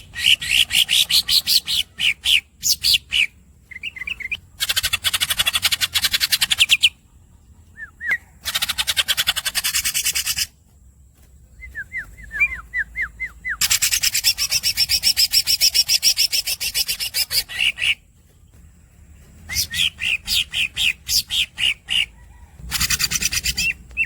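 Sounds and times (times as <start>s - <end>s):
bird singing rolling trills: 0.0s - 24.0s.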